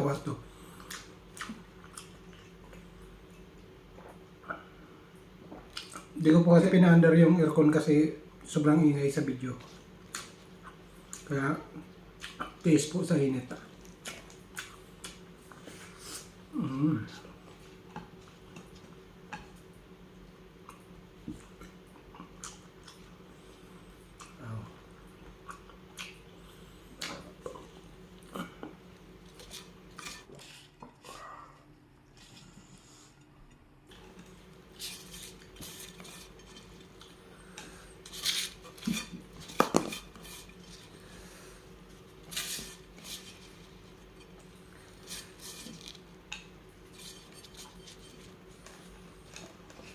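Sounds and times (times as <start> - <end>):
mouth sounds of eating: 9.6 - 19.7, 20.6 - 33.0
person humming: 16.5 - 17.2.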